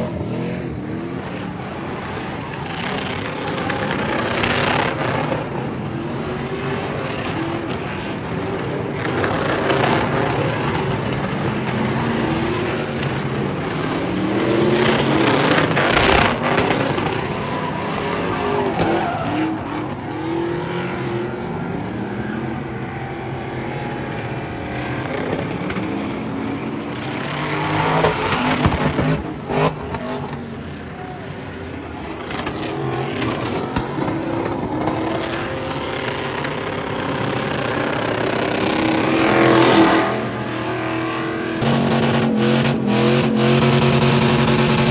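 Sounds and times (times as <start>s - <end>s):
truck engine revving: 0.0s - 44.9s
tyre squeal: 15.0s - 26.0s, 26.8s - 44.9s.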